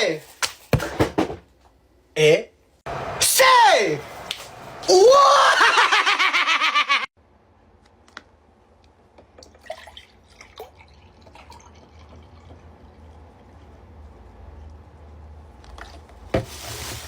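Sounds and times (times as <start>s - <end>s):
small liquid sounds: 9.4s - 13.8s.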